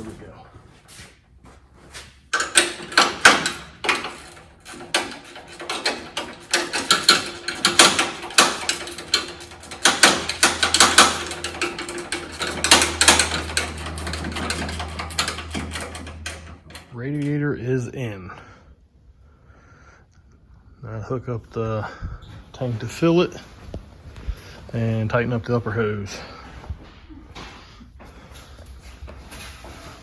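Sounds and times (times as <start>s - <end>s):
low steady hum: 2.4s - 18.6s.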